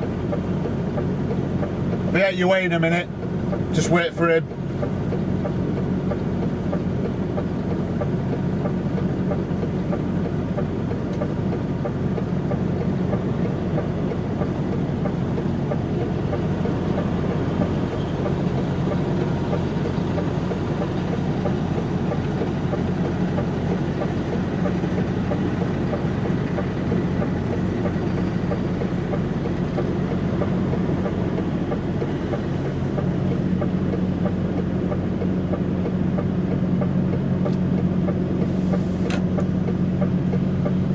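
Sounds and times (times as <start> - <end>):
truck diesel engine droning: 0.0 - 40.9.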